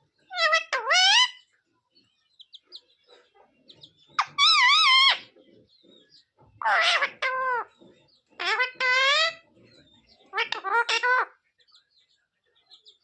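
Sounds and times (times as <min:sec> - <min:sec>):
parrot calling: 0:00.3 - 0:01.5, 0:04.1 - 0:05.4, 0:06.6 - 0:07.8, 0:08.4 - 0:09.4, 0:10.2 - 0:11.4
parrot chirps: 0:00.3 - 0:01.5, 0:04.1 - 0:05.3, 0:08.4 - 0:09.4, 0:10.3 - 0:11.4.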